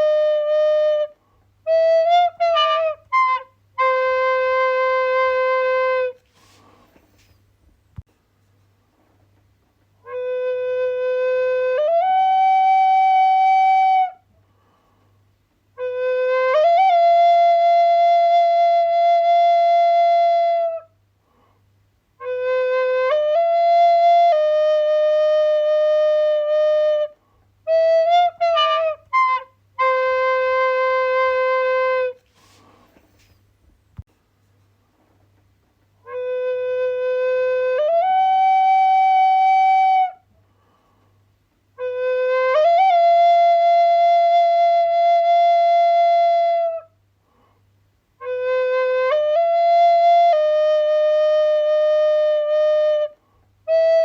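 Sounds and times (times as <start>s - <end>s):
flute playing: 0.0s - 6.6s, 10.0s - 14.2s, 15.8s - 20.9s, 22.2s - 32.7s, 36.0s - 40.2s, 41.8s - 46.9s, 48.2s - 54.0s.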